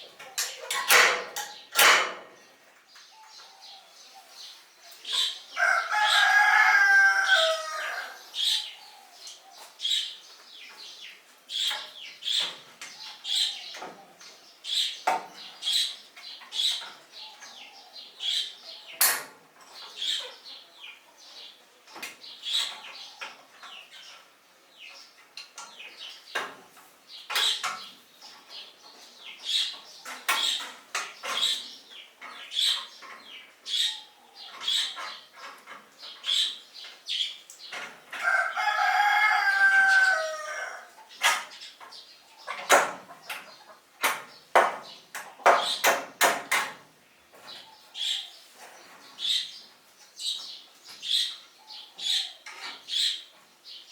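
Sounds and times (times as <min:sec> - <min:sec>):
rooster crowing: 0:05.6 - 0:08.4, 0:38.2 - 0:40.9.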